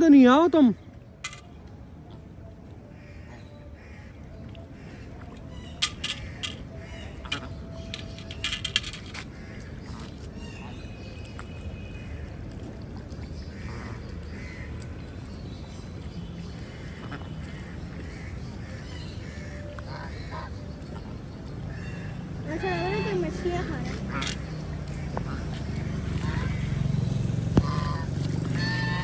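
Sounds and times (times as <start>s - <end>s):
rain and water: 0.0s - 29.0s
ducks quacking: 4.8s - 10.8s, 16.2s - 29.0s.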